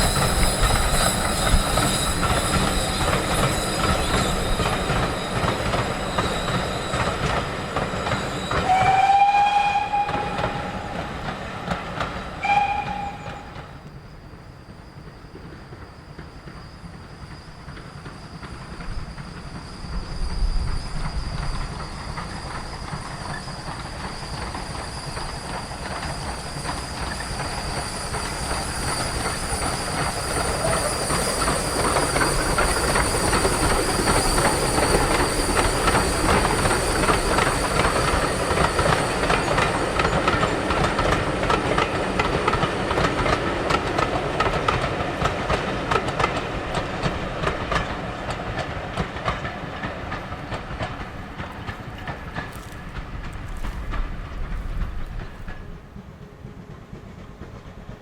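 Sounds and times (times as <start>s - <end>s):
steam train running past: 0.0s - 58.0s
wheels clicking over rail joints: 20.6s - 58.0s.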